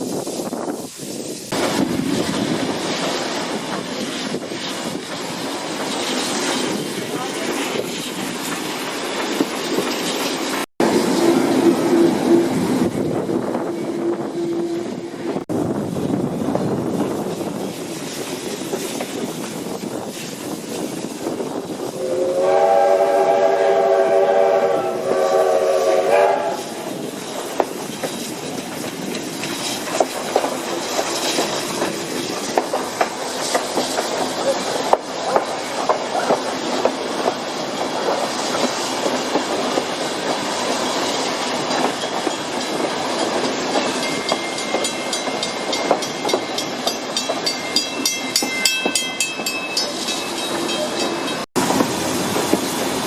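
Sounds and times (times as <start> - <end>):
train rumble: 0.0 - 53.0
wheels clacking over rail joints: 0.9 - 15.5, 16.8 - 21.6, 26.2 - 53.0
high wheel squeal: 13.6 - 15.4.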